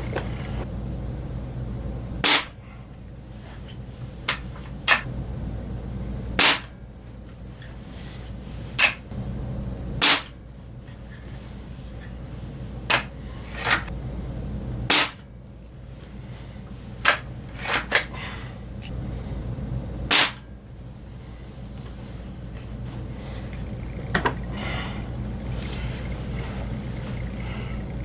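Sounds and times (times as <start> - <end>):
air rifle shots: 2.2 - 2.6, 6.4 - 6.8, 10.0 - 10.4, 14.9 - 15.2, 20.1 - 20.5.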